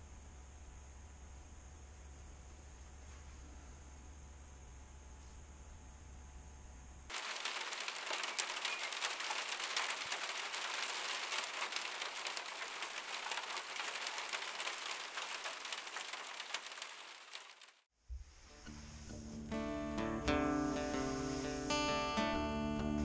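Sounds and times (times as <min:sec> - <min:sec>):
steady rain falling: 0:07.1 - 0:17.9.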